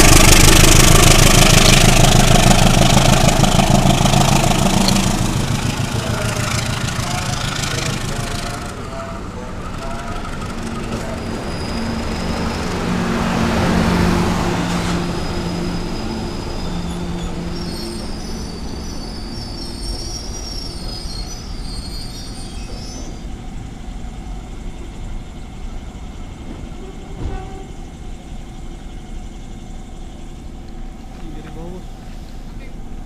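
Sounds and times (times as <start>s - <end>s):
train passing: 0.0s - 33.0s
high-pitched wheel squeal: 1.4s - 13.0s, 14.6s - 23.3s, 26.8s - 28.0s.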